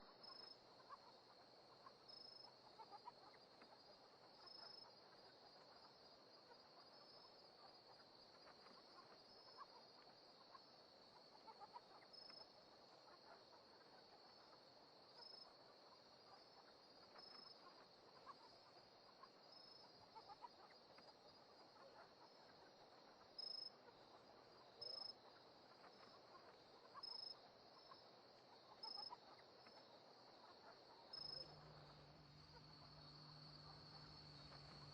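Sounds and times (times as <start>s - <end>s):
insects trilling: 13.9s - 34.9s
loud cricket chirps: 26.9s - 34.9s.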